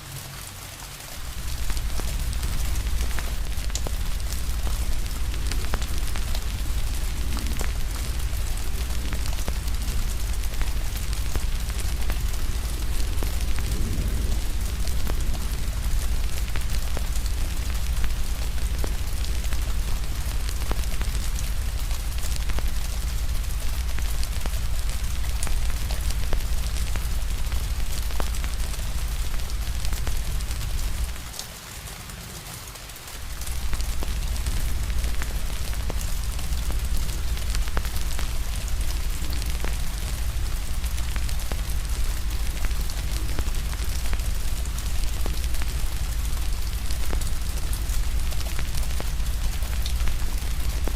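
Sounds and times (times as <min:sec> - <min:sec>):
steady rain: 0:00.0 - 0:50.9
deep low rumble: 0:01.2 - 0:31.2
fire crackling and popping: 0:01.2 - 0:32.3, 0:32.9 - 0:50.9.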